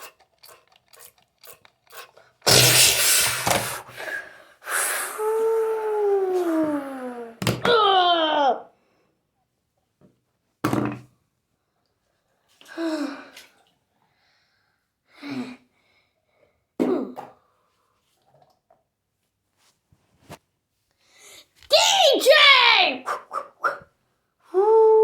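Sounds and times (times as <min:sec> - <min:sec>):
person coughing: 0:16.8 - 0:17.3.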